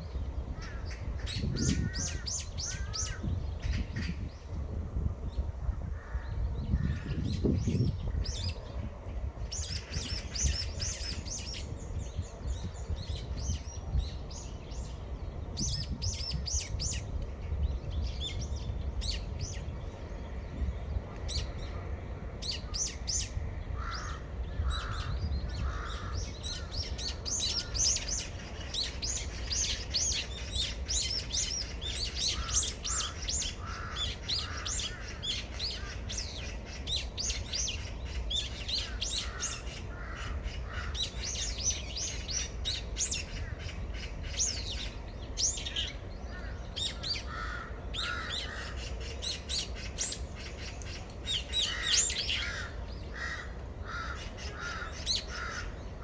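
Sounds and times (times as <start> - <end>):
small birds chirping: 22.4 - 56.0
crow cawing: 23.8 - 26.8, 32.2 - 36.2, 38.8 - 41.1, 47.2 - 48.8, 51.6 - 55.8.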